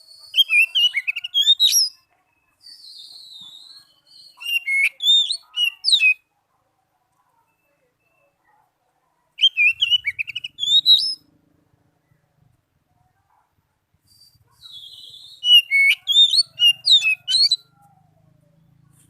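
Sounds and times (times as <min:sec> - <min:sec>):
magpie-robin whistled song: 0:00.0 - 0:06.3, 0:09.4 - 0:11.3, 0:14.0 - 0:18.0.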